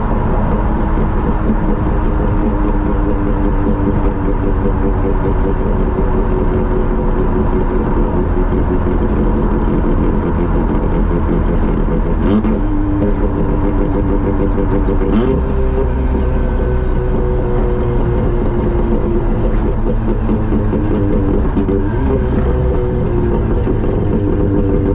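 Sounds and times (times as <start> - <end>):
rotary car engine droning: 0.0 - 24.9.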